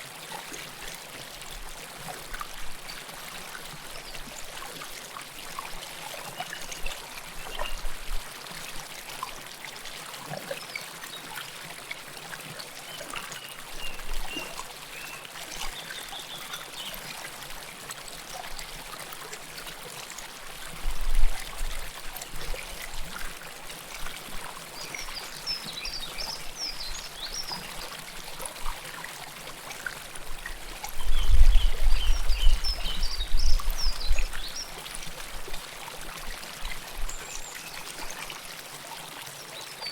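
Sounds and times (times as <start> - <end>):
river water babbling: 21.5 - 31.0, 31.9 - 39.9.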